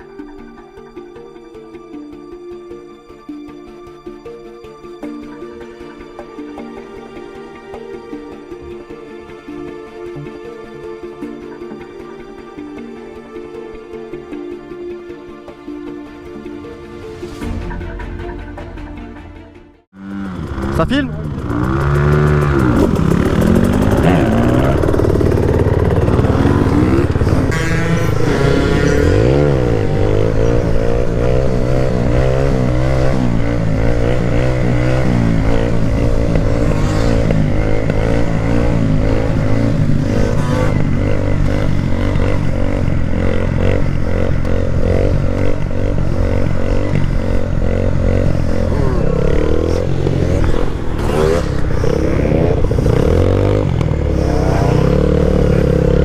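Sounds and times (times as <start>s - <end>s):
motorcycle engine revving: 19.9s - 56.0s.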